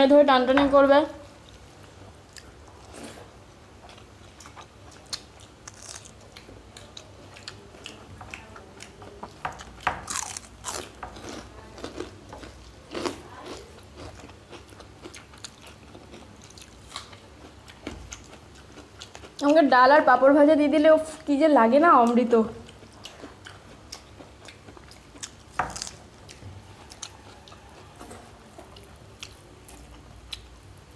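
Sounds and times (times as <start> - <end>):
chewing and biting: 3.8 - 19.5, 22.6 - 30.5
crisp crunches of fried papad: 5.6 - 6.4, 10.0 - 17.2.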